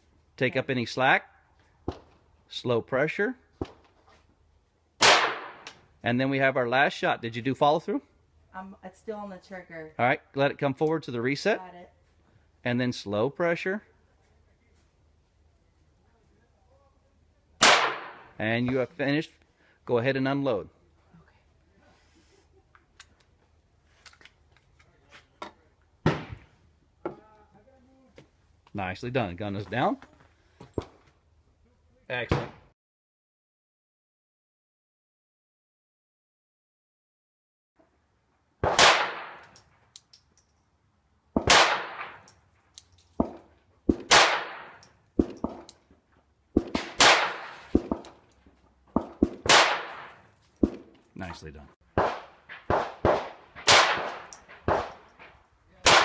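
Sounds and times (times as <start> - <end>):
pistol gunshots echoing: 5.0 - 5.7, 17.6 - 18.3, 38.6 - 39.5, 41.4 - 42.3, 43.2 - 45.7, 46.6 - 48.2, 49.0 - 50.8, 52.0 - 55.1
pistol metallic clicks and clacks: 39.4 - 40.7, 42.0 - 45.9, 47.7 - 49.4, 53.9 - 55.4.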